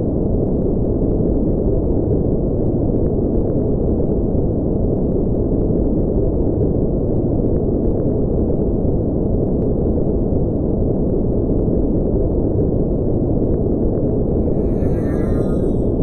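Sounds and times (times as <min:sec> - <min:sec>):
low synthetic engine drone: 0:14.0 - 0:16.0.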